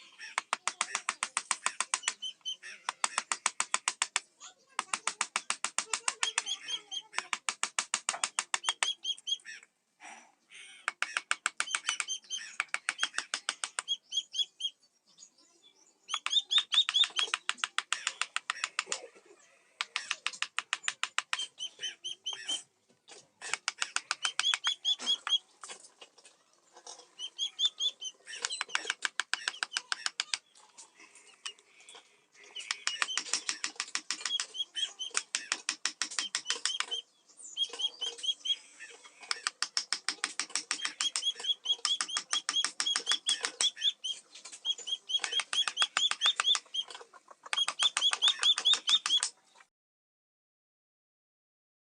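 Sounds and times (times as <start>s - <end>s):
hammer tapping carving chisel: 0.3s - 9.0s, 10.9s - 13.8s, 16.1s - 19.0s, 19.8s - 22.6s, 23.4s - 25.4s, 27.9s - 30.5s, 32.6s - 37.0s, 39.3s - 43.8s, 44.7s - 46.7s, 47.5s - 49.3s.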